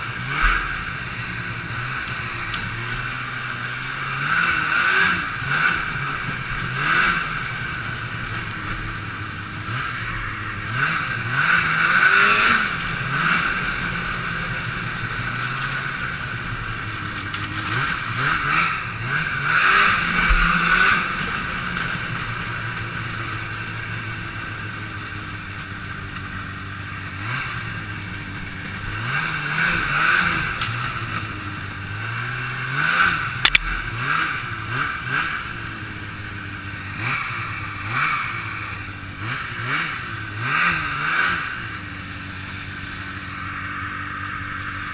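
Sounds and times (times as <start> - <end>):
snowmobile engine revving: 0.0 - 44.9.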